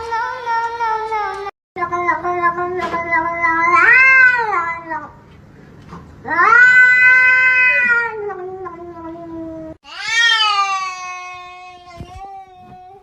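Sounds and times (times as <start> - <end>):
cat yowling: 3.5 - 4.8, 6.3 - 8.8, 9.8 - 11.8.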